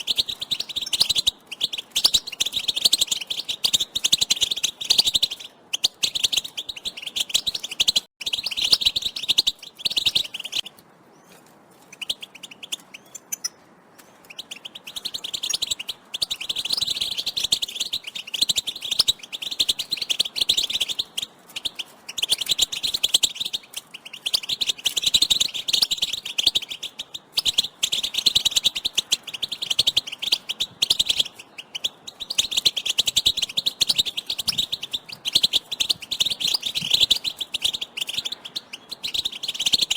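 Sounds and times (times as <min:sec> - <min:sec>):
goldfinches twittering: 0:14.2 - 0:39.9.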